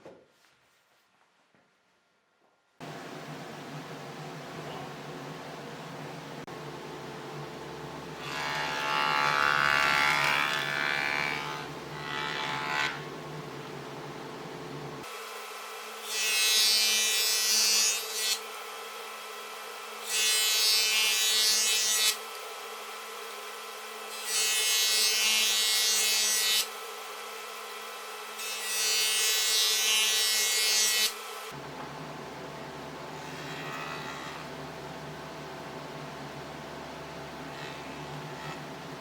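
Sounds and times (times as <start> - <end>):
power tool cutting wood: 8.2 - 13.0, 15.1 - 31.6.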